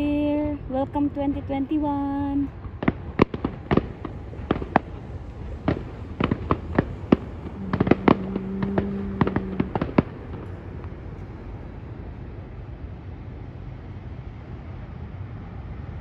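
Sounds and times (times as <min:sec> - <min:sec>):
low rumble: 0:00.0 - 0:16.0
steady low tone: 0:00.0 - 0:16.0
fireworks bursting: 0:02.8 - 0:11.0.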